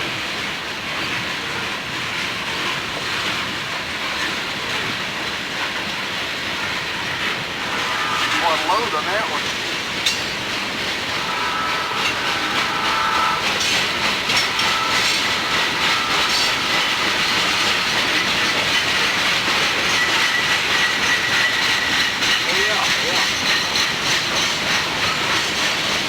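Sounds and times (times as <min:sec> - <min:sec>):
freight train rumbling past: 0:00.0 - 0:26.0
rail joint clicks: 0:00.0 - 0:26.0
thin squealing tones: 0:11.1 - 0:18.2.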